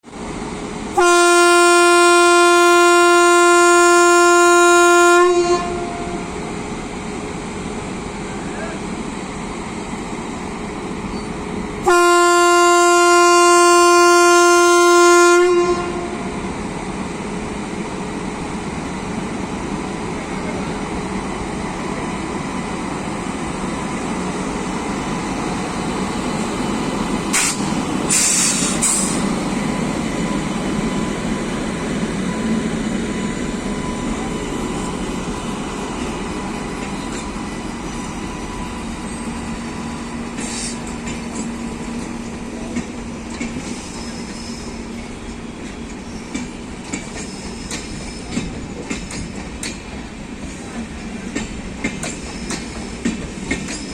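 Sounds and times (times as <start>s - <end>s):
train rumbling on track: 0.0s - 53.9s
locomotive horn blast: 1.0s - 6.3s, 11.8s - 16.4s
short hissing bursts: 27.3s - 29.3s.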